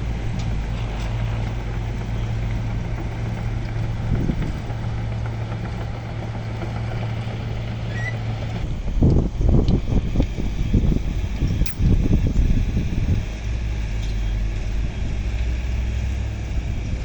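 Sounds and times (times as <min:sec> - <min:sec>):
heavy diesel engine humming: 0:00.0 - 0:17.0.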